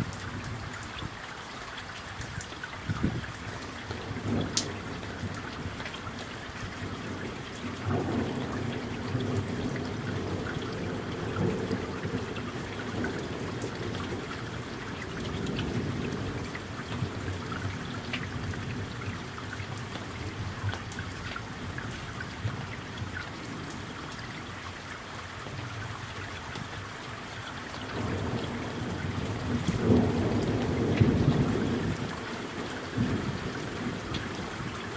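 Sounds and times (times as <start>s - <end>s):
rain falling: 0.0s - 34.9s
distant thunder rumbling: 6.8s - 19.5s, 27.9s - 34.9s.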